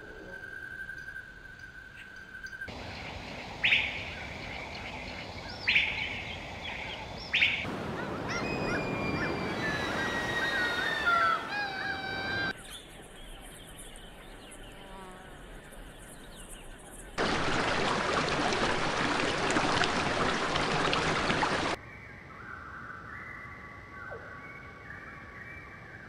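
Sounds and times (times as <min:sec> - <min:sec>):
thin gliding bird calls: 0:00.0 - 0:14.3
sharp bird calls: 0:02.7 - 0:12.9
surf rushing: 0:07.6 - 0:12.5, 0:17.2 - 0:21.8.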